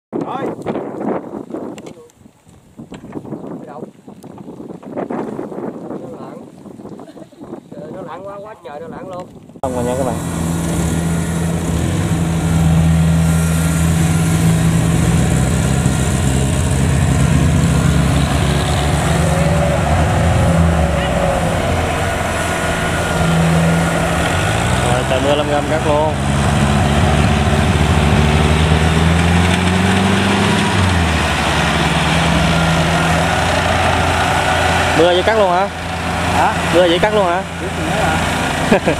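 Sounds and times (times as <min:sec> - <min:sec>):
combine harvester diesel engine: 0:09.6 - 0:38.9.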